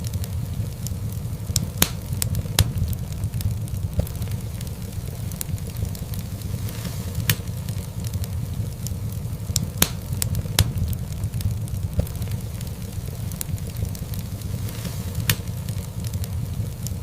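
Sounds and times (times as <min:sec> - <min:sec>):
burning logs rumbling: 0:00.0 - 0:17.0
fire popping: 0:00.0 - 0:17.0.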